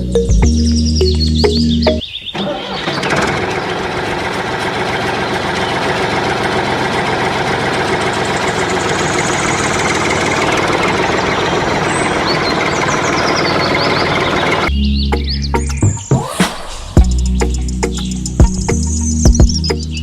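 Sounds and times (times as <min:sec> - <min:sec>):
small motor ticking: 0:02.4 - 0:14.7.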